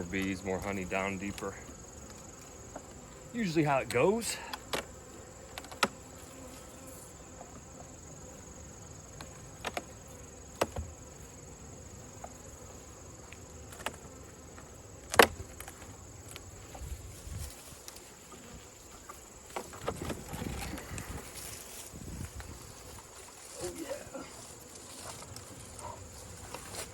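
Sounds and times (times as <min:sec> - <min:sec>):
wooden hive boxes knocking: 0:00.0 - 0:06.0, 0:09.1 - 0:11.1, 0:13.7 - 0:16.8
bees buzzing: 0:00.0 - 0:26.9.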